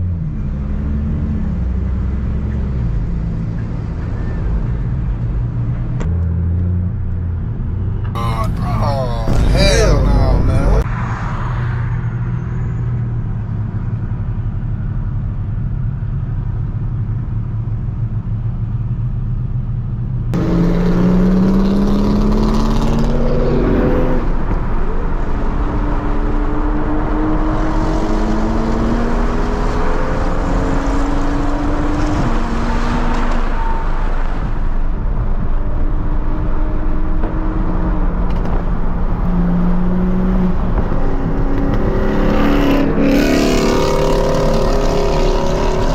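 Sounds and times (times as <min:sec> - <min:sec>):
car engine accelerating with upshifts: 0:20.4 - 0:45.9.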